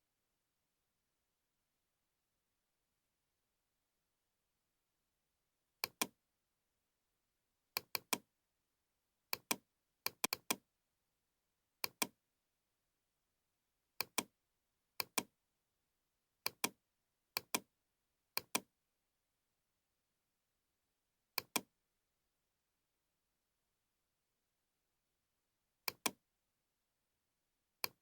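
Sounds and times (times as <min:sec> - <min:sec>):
computer mouse clicks: 0:05.8 - 0:06.1, 0:07.8 - 0:08.2, 0:09.3 - 0:10.6, 0:11.8 - 0:12.1, 0:14.0 - 0:14.3, 0:15.0 - 0:15.3, 0:16.5 - 0:16.8, 0:17.4 - 0:17.6, 0:18.4 - 0:18.7, 0:21.4 - 0:21.7, 0:25.9 - 0:26.2.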